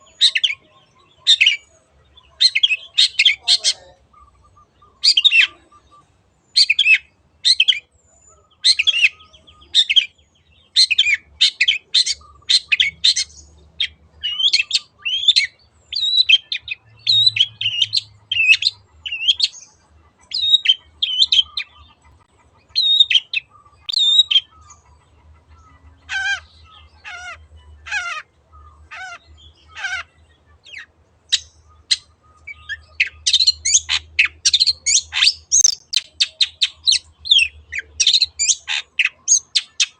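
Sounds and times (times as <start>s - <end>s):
bird singing sharp high notes: 35.3s - 36.2s.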